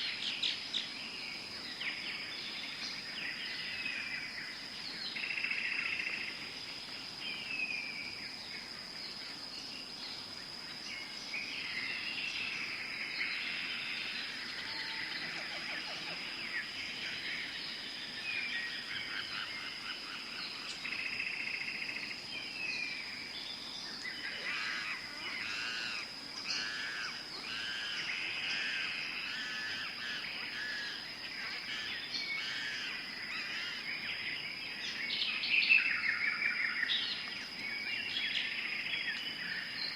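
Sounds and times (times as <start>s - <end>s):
high-pitched insect drone: 24.2s - 35.1s.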